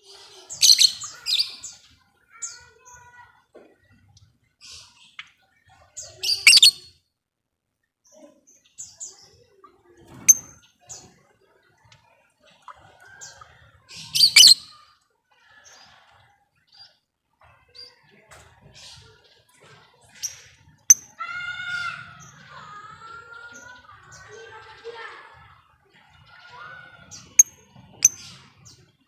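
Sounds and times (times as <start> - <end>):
lovebirds chirping: 6.1 - 6.9.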